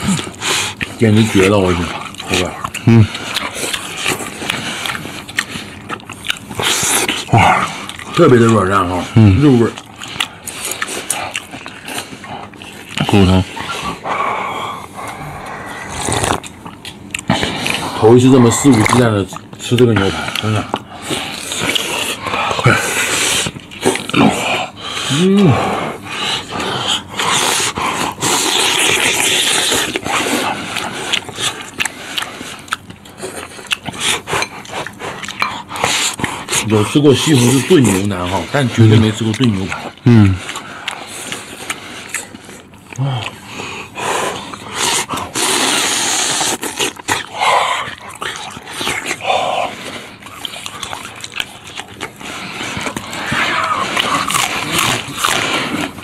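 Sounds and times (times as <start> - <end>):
wet chewing with lip smacks: 0.0 - 14.0, 14.8 - 24.9, 26.0 - 56.0
man slurping and sucking: 14.8 - 16.5, 44.1 - 47.5
crunching raw onion: 44.4 - 56.0.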